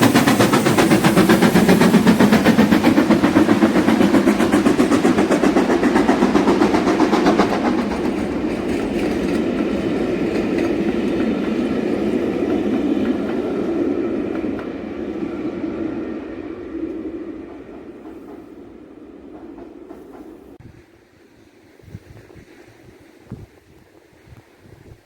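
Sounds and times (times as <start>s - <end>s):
train rhythmic pulsing on rails: 0.0s - 23.2s
rumble of train coaches: 0.0s - 24.9s.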